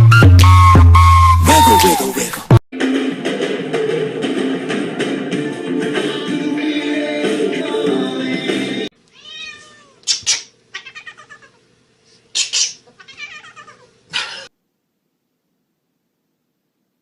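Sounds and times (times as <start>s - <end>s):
cat meowing and yowling: 9.2s - 10.0s, 10.8s - 11.6s, 13.0s - 13.9s.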